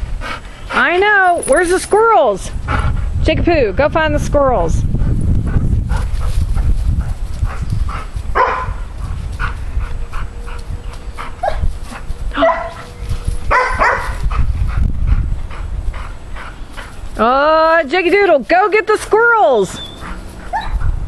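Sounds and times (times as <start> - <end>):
steady low rumble: 0.0 - 21.0
dogs yipping and whining: 10.1 - 14.2, 19.7 - 21.0.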